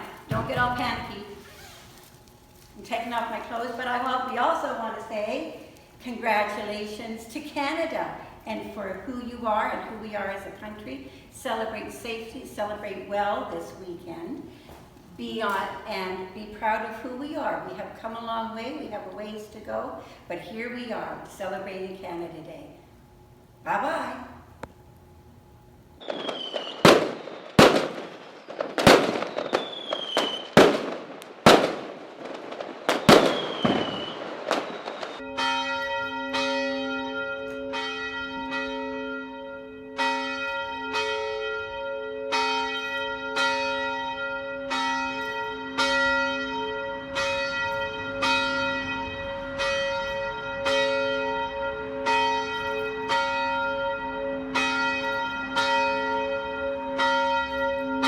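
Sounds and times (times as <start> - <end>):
firecracker bangs: 0.0 - 2.0, 26.0 - 35.2
falling whistle: 26.1 - 27.6, 29.2 - 30.6, 33.0 - 35.2
church bell tolling: 35.2 - 58.0.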